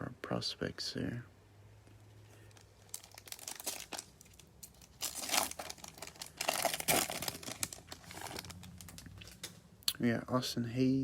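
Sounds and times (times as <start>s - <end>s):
foil wrapper tearing and crinkling: 2.4s - 9.5s.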